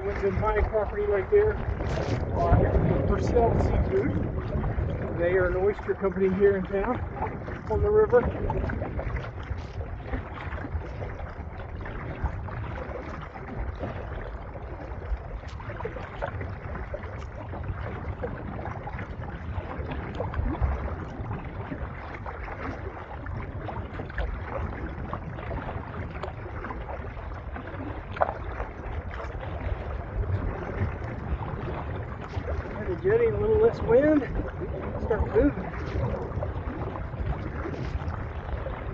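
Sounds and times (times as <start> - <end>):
waves lapping against kayak hull: 0.0 - 38.9
wind buffeting microphone: 0.0 - 38.9.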